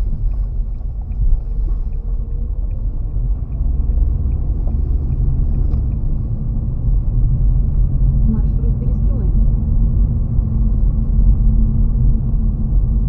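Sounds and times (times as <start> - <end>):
car driving on slushy road: 0.0 - 13.0
faint ticks: 0.1 - 6.2.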